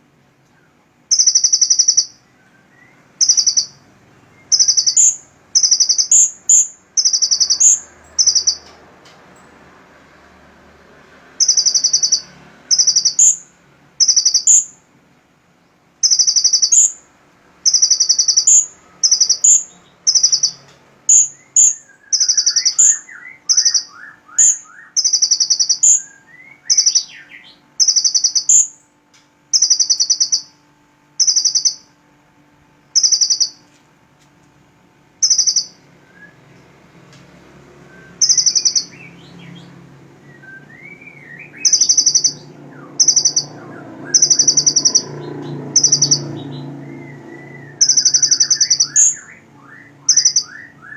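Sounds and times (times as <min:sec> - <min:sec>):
faint low bird trill: 0:00.0 - 0:08.8, 0:11.3 - 0:14.9, 0:15.7 - 0:33.8, 0:34.7 - 0:36.7, 0:37.7 - 0:50.9
bird high buzzy notes: 0:37.6 - 0:50.9.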